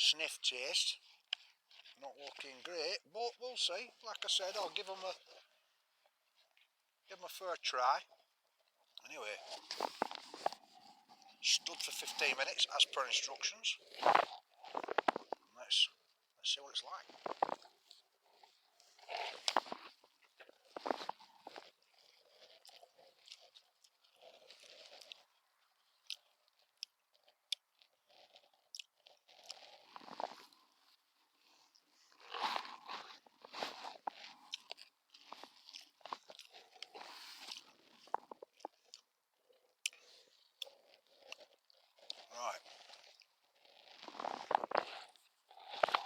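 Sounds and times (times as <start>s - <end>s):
person chewing food: 1.0s - 2.7s, 8.0s - 16.4s, 17.0s - 46.0s.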